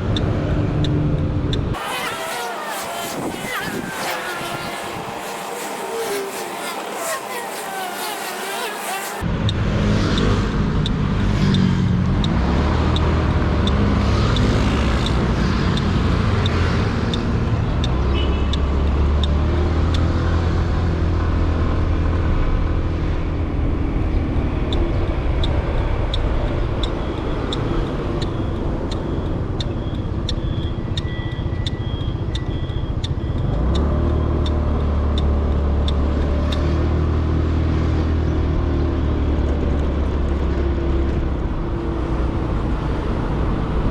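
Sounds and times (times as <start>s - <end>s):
regular ticking: 0.0s - 11.6s, 12.2s - 20.1s, 24.6s - 36.6s
motorcycle engine running: 1.8s - 9.2s.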